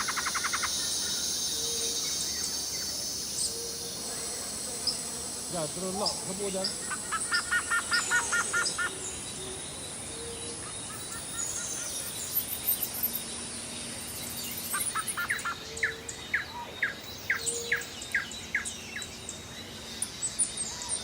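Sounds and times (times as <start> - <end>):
birds chirping: 0.0 - 21.0
steady outdoor hiss: 0.0 - 21.0.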